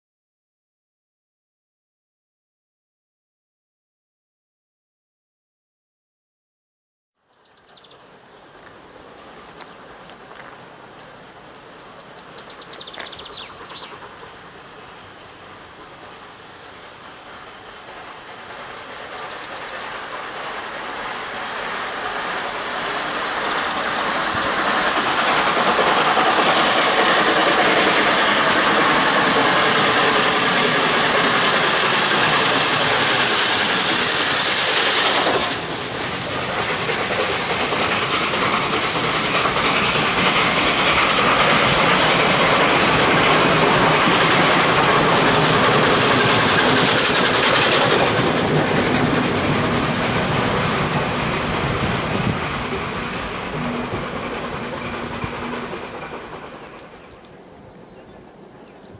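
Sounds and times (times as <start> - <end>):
steam train running past: 7.3 - 58.9
steam hissing: 7.5 - 58.9
birds chirping: 11.1 - 20.1, 22.6 - 25.2, 52.8 - 58.9.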